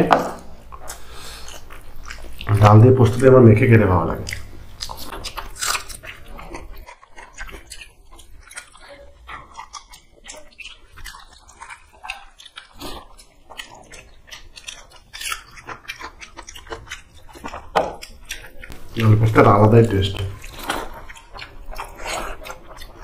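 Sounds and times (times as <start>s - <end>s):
people chewing with wet smacking: 0.2s - 23.0s.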